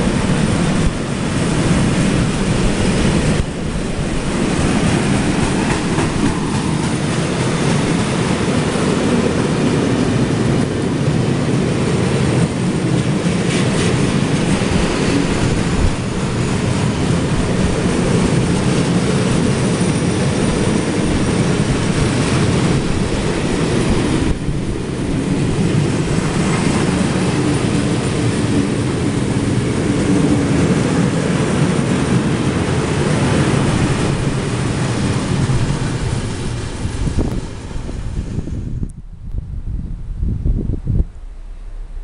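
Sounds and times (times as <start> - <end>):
freight train rolling past: 0.0 - 42.0.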